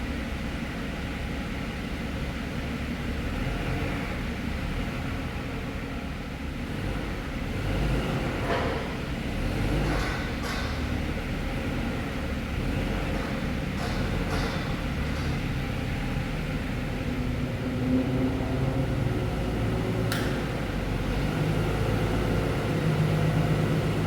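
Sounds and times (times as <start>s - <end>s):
forklift engine rumbling: 9.1s - 24.0s
short metal knocks: 13.1s - 15.7s.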